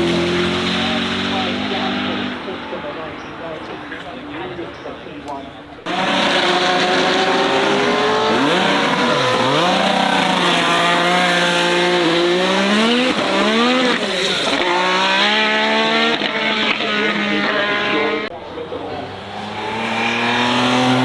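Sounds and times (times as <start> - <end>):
car engine revving hard: 0.0 - 2.5, 5.9 - 18.3, 18.9 - 21.0.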